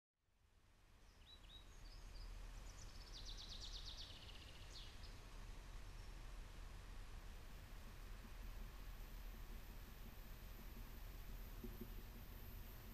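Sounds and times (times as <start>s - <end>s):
low steady rumble: 0.7s - 12.9s
songbird chirps and trill: 1.0s - 5.2s.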